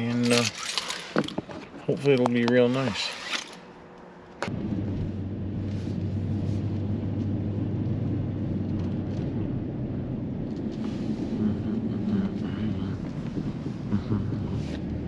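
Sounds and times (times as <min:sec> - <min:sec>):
vehicle engine droning: 0:03.6 - 0:15.0.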